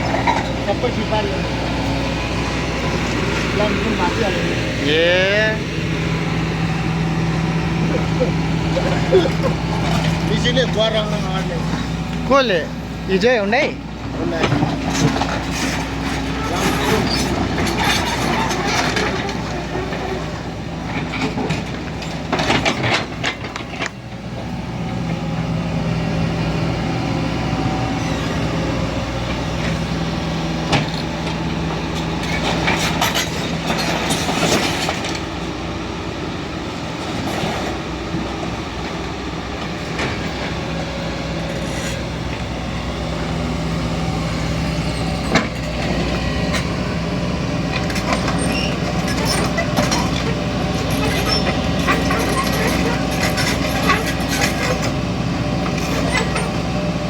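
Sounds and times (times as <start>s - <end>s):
metal clanks and knocks: 0.0s - 1.3s, 14.0s - 20.2s, 20.9s - 24.0s, 47.7s - 55.0s
excavator diesel engine running: 0.0s - 57.0s.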